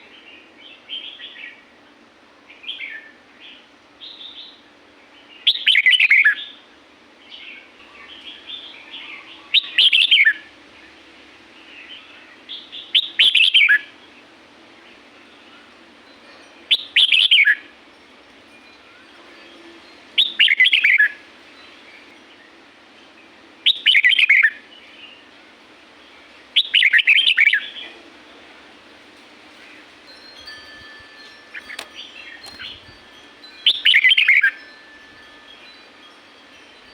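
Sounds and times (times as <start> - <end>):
soft bird chirps: 29.6 - 34.8.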